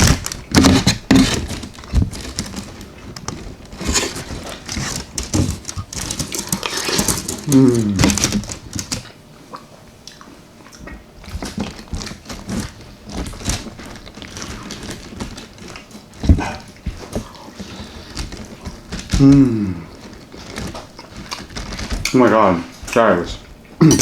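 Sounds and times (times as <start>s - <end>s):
chewing and mouth sounds: 5.7s - 12.1s
person humming: 7.3s - 8.4s, 19.1s - 19.9s.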